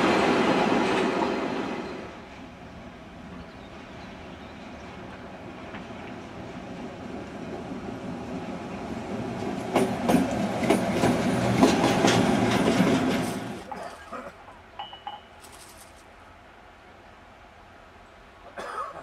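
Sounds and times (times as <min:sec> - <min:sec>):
train wheels clattering over rail joints: 0:09.4 - 0:13.8.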